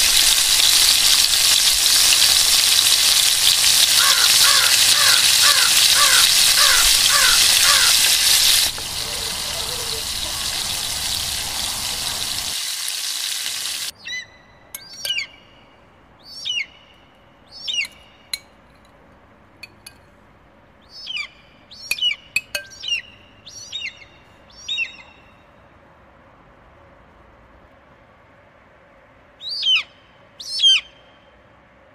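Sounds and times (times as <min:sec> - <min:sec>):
steak sizzling on a grill: 0:00.0 - 0:13.9
bird chirping: 0:14.0 - 0:18.5, 0:20.8 - 0:25.5.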